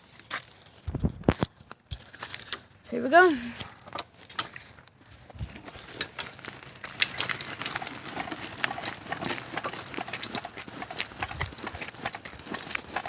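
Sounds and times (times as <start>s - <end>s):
bicycle rolling over rough ground: 0.0s - 13.0s
footsteps on dirt trail: 0.0s - 13.0s.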